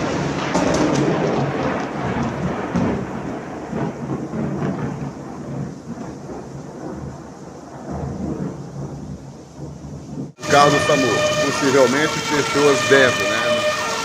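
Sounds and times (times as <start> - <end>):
heavy rain hissing: 10.4 - 14.0.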